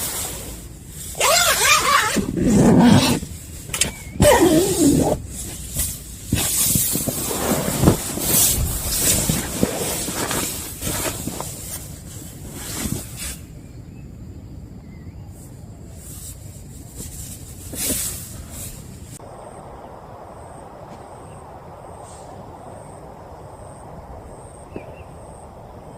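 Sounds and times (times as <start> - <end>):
gusting wind: 0.0 - 25.9.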